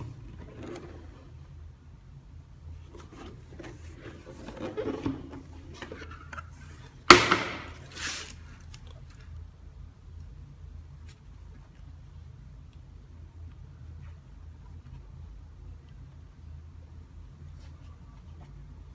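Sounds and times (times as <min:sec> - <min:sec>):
sharp knock: 0:07.1 - 0:07.8
soft scrape: 0:07.7 - 0:08.4.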